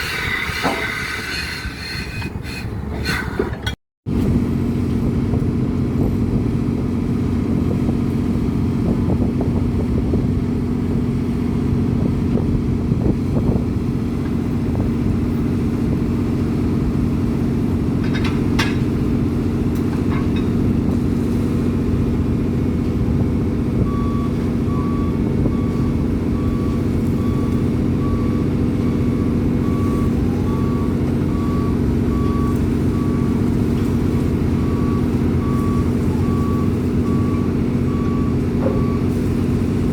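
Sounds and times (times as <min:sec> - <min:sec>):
diesel engine running: 0:00.0 - 0:39.9
reversing alarm beeping: 0:23.8 - 0:33.5, 0:34.5 - 0:39.2.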